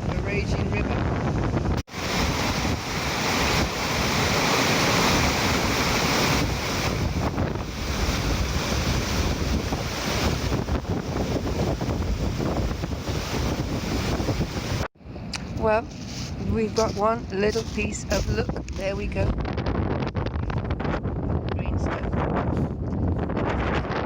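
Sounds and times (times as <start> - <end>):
wind buffeting microphone: 0.0 - 24.0
surf breaking on shore: 1.8 - 14.9.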